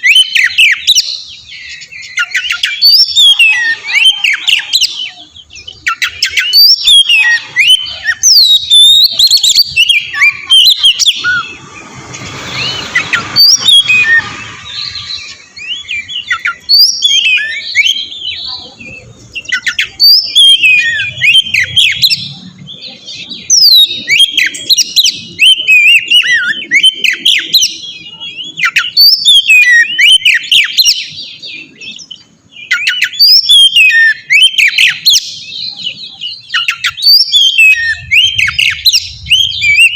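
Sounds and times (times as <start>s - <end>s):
bird whistling song: 0.0s - 39.9s
brief rush of noise: 11.3s - 15.2s.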